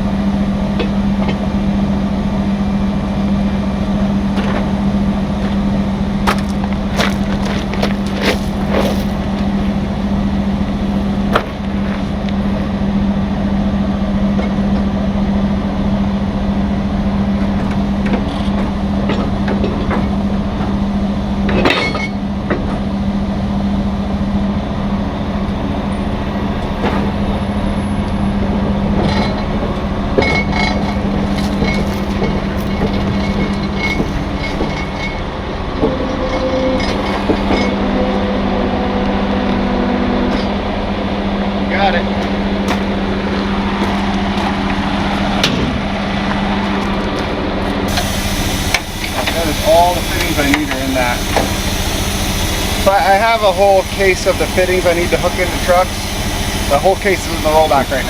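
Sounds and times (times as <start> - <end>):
diesel truck engine idling: 0.0 - 58.0
short knocks: 6.2 - 9.2.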